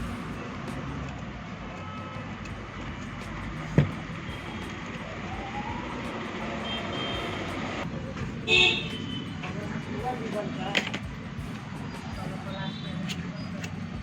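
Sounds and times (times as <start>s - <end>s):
road traffic rumble: 0.0s - 14.0s
vehicle horn honk: 4.3s - 4.8s, 6.6s - 7.6s, 8.4s - 9.5s, 12.5s - 13.2s.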